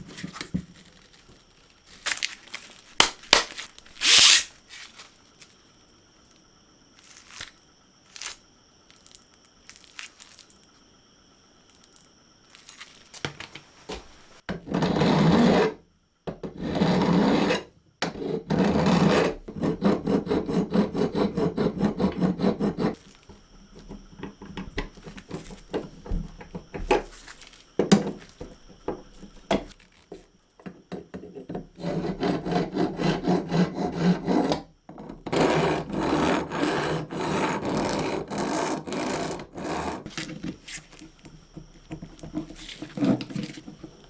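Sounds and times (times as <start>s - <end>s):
abrasive rubbing on metal by hand: 4.0s - 4.5s.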